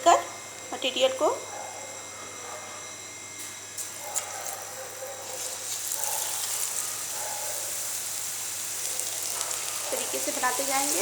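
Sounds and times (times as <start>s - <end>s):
oil sizzling: 3.8s - 11.0s.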